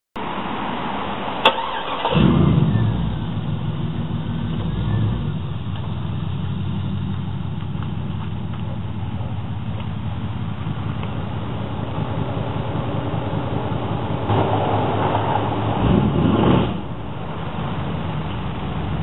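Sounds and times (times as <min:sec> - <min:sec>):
car engine starting and idling: 0:00.2 - 0:19.0.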